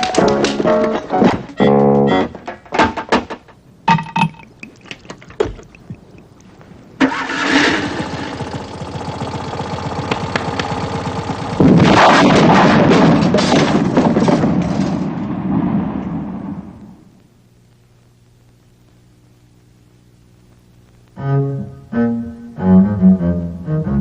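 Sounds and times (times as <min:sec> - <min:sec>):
car engine starting and running: 0:07.0 - 0:11.9.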